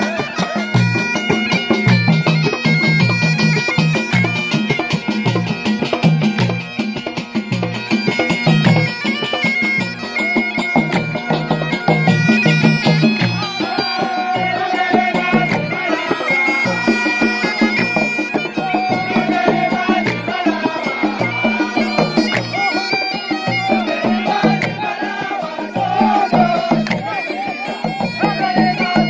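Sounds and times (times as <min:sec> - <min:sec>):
reedy wind instrument: 0:00.0 - 0:29.0
steady drum beat: 0:10.8 - 0:29.0.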